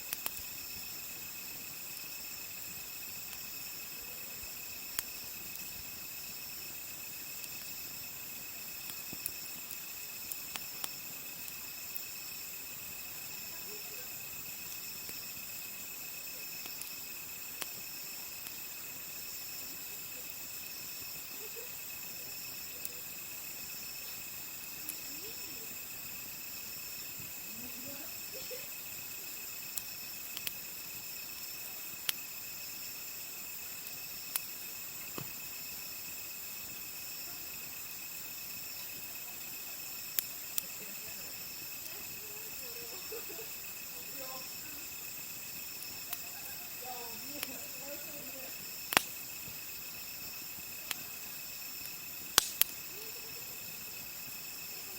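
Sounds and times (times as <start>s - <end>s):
campfire popping and crackling: 0.0s - 54.9s
insects trilling: 0.0s - 54.9s
faint voices: 13.3s - 14.4s, 19.6s - 26.1s, 27.2s - 28.9s, 38.9s - 48.8s, 52.8s - 54.0s, 54.6s - 54.9s.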